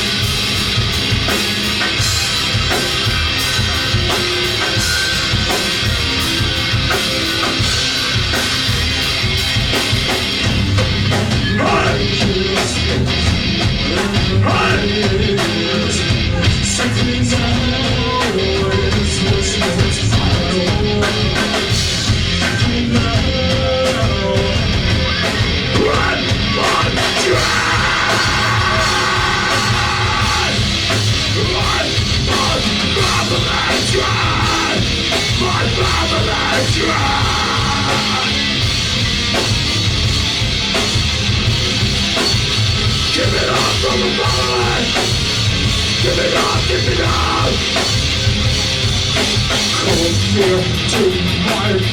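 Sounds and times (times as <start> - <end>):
live rock band playing: 0.0 - 51.9
shouted vocals: 11.3 - 12.8, 14.0 - 15.1, 24.2 - 38.6, 43.0 - 45.1, 46.0 - 47.7.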